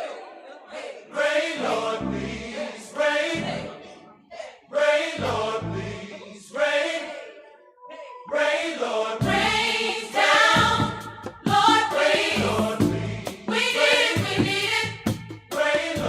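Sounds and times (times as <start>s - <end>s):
gospel choir singing: 0.0s - 16.0s
low bass line: 12.4s - 13.3s.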